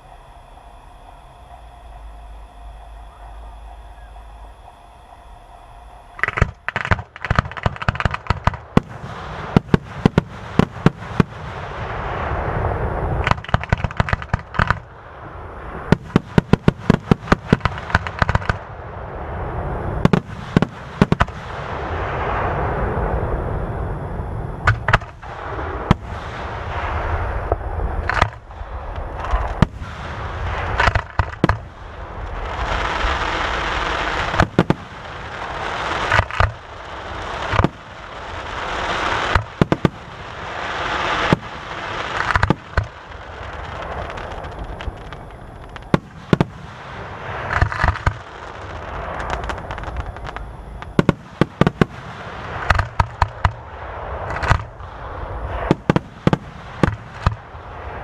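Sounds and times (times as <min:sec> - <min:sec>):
rushing noise: 0:00.0 - 0:58.0
firework shells bursting: 0:06.2 - 0:12.1, 0:13.2 - 0:15.0, 0:15.8 - 0:18.7, 0:20.0 - 0:21.6, 0:24.6 - 0:57.6.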